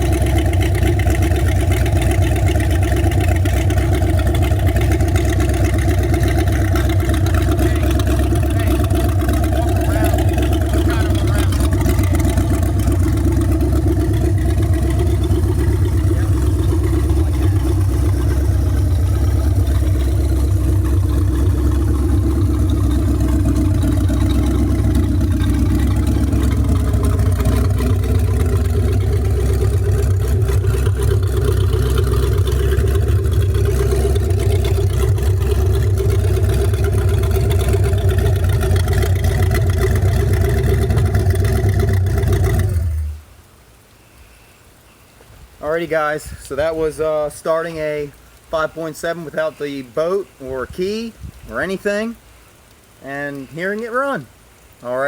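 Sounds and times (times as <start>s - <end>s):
boat engine running: 0.0s - 43.4s.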